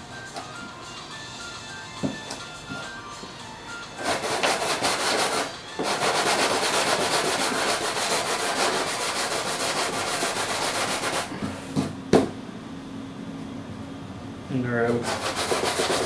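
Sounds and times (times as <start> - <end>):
sandpaper rubbing by hand: 4.0 - 11.3, 15.0 - 16.0.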